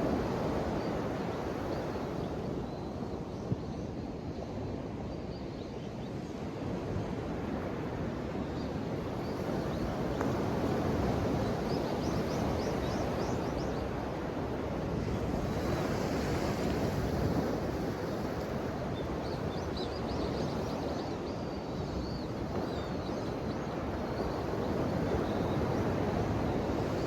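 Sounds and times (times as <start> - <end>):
ocean waves washing ashore: 6.5 - 27.0.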